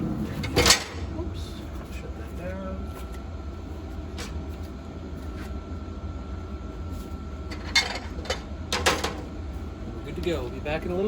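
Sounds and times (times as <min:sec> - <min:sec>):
faint steady whine: 0:00.0 - 0:11.0
pellet grill humming: 0:00.0 - 0:11.0.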